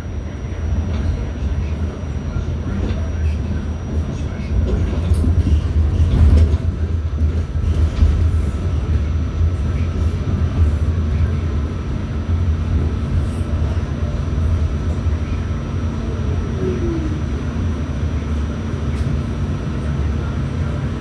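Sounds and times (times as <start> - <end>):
subway car rumbling on track: 0.0 - 21.0.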